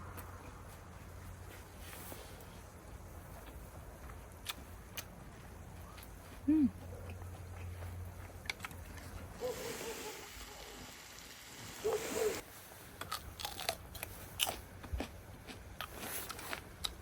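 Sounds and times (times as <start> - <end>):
crunchy food being chewed: 2.4 - 9.4, 13.0 - 17.0
hiss: 9.4 - 12.4.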